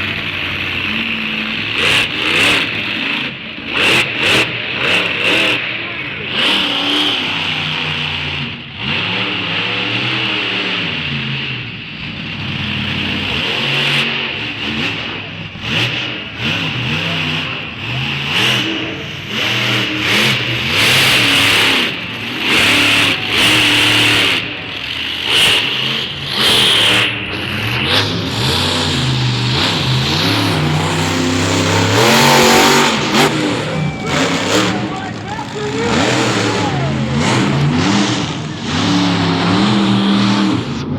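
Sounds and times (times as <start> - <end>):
monster truck engine revving: 0.0 - 40.9.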